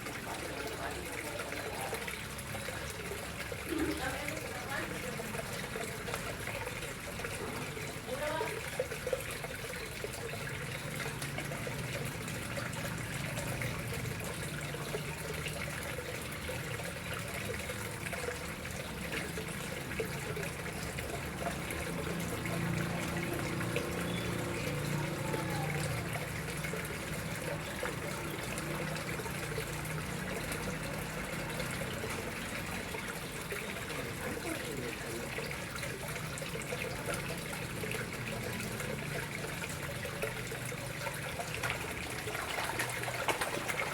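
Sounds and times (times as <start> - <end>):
water trickling into pond: 0.0 - 43.9.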